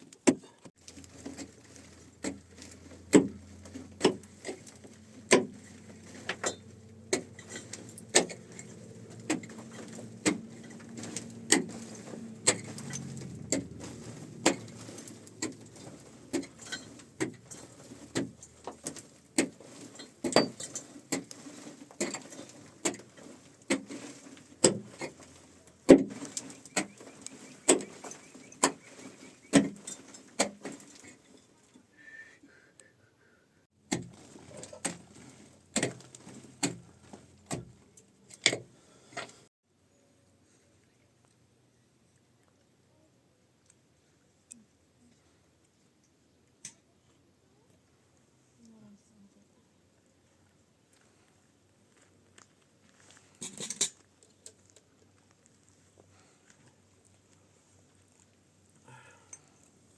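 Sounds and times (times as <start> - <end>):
low motor hum: 0.8 - 18.6.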